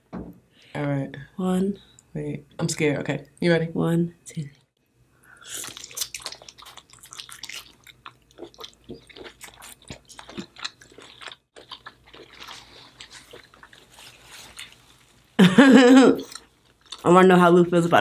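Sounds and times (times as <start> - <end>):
wet chewing and mouth clicks: 5.4 - 15.3, 16.2 - 17.1.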